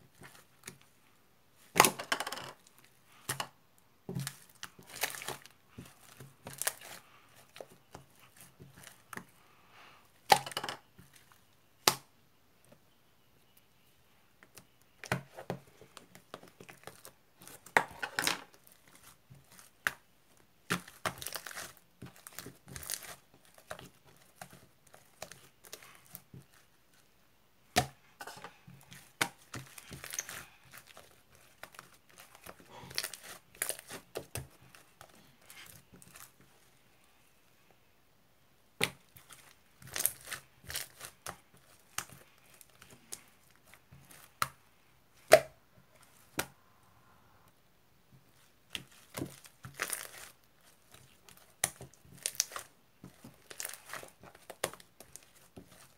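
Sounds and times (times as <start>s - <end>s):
material crinkling and tearing: 4.2s - 9.1s, 20.7s - 27.0s, 28.2s - 36.4s, 38.8s - 44.6s, 48.3s - 55.9s.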